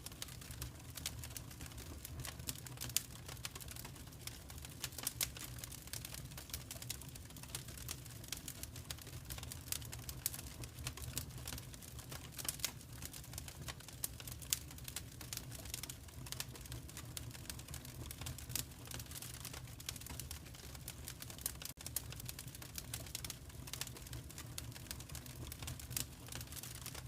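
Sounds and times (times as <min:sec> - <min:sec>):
low rumble of flames: 0:00.0 - 0:27.0
wood fire crackling: 0:00.0 - 0:27.0.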